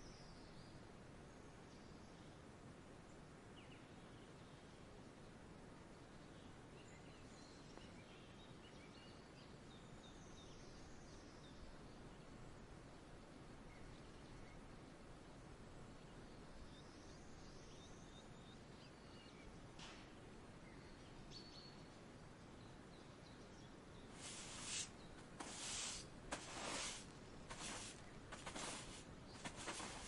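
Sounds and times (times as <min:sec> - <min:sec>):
faint distant bird chirps: 0:00.0 - 0:19.8, 0:20.4 - 0:30.0
short rustling bursts: 0:24.2 - 0:30.0.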